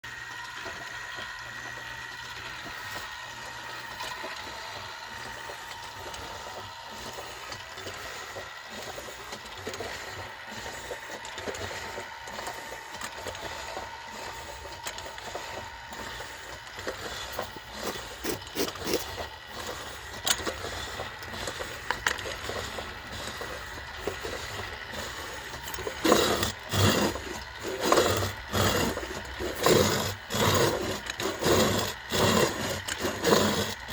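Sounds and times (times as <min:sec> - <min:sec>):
steady hum: 0:00.1 - 0:33.9
gritty rubbing and scraping: 0:13.4 - 0:33.9.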